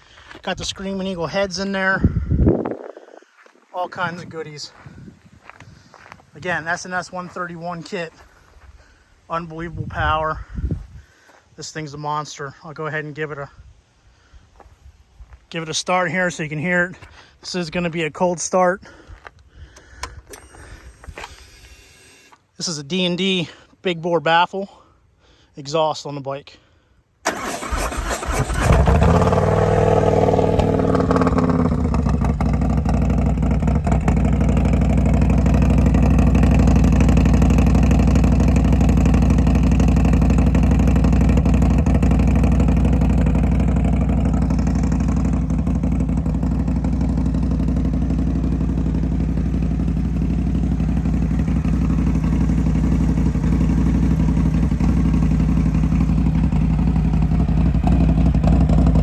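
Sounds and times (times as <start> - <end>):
motorcycle engine idling: 27.4 - 59.0.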